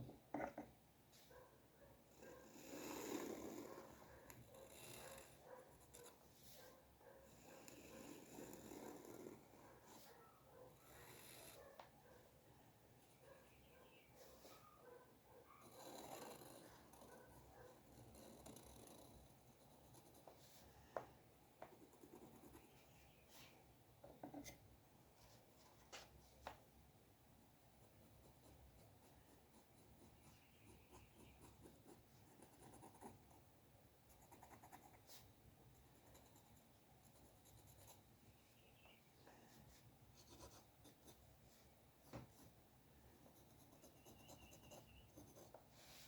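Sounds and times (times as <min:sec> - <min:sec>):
drawing tool scratching paper: 0:02.2 - 0:06.6, 0:07.3 - 0:10.2, 0:10.8 - 0:11.6, 0:15.6 - 0:20.7, 0:21.6 - 0:23.1, 0:27.7 - 0:33.4, 0:40.2 - 0:41.3, 0:43.2 - 0:46.0.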